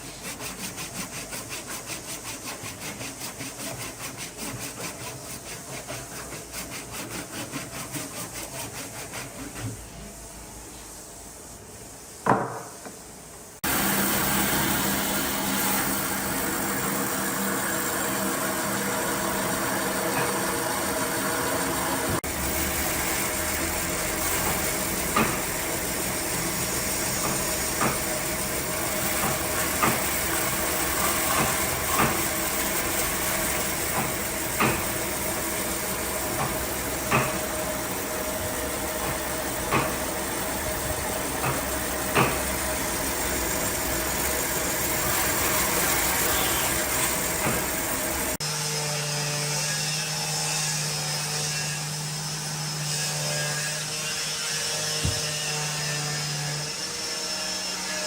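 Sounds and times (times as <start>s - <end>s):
power tool motor running: 13.6s - 58.0s.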